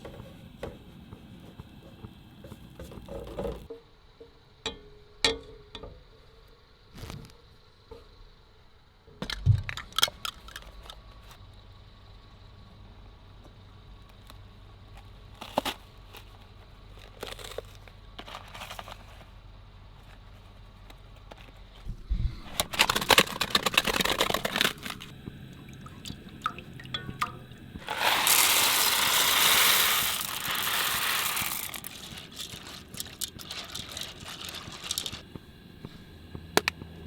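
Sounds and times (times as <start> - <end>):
crackling and clatter: 22.5 - 25.4, 26.4 - 35.4
steady hiss: 24.9 - 37.0.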